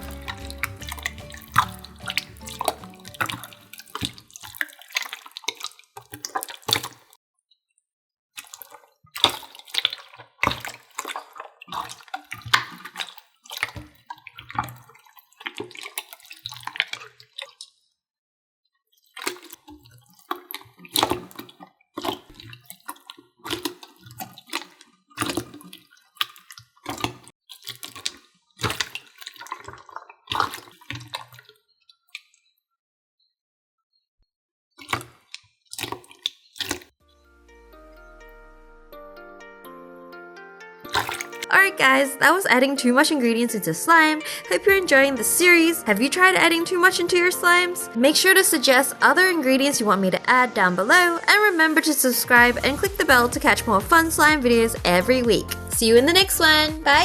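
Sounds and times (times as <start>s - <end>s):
slime squelching: 0.0s - 7.2s, 8.4s - 17.7s, 19.0s - 32.4s, 34.8s - 36.9s, 40.9s - 43.1s.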